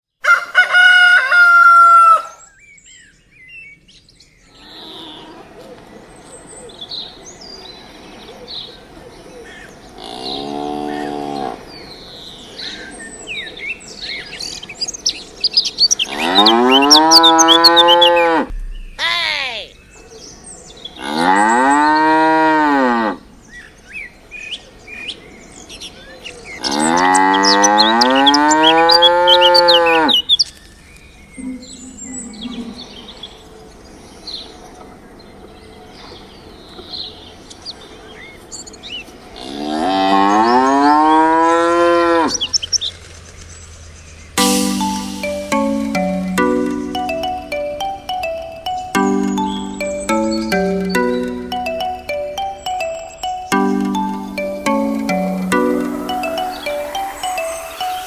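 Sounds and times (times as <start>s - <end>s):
birds chirping: 15.7s - 20.0s, 26.7s - 30.2s.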